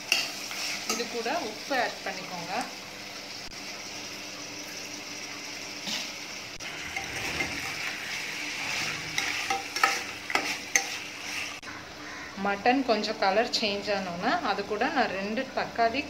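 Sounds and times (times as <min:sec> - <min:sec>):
meat sizzling in hot oil: 0:00.0 - 0:11.7
metal spoon scraping pot: 0:06.6 - 0:11.6.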